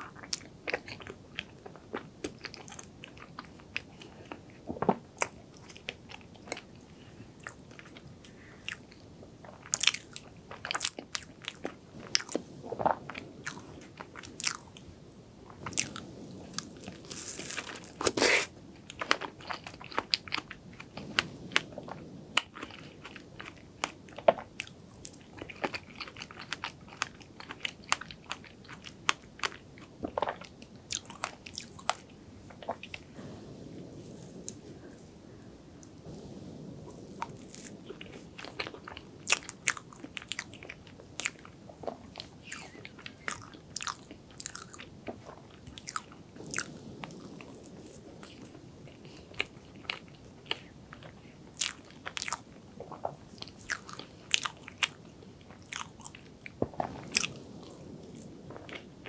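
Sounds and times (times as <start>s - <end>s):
chewing with mouth clicks: 0.0s - 14.8s, 15.5s - 33.2s, 36.9s - 59.0s.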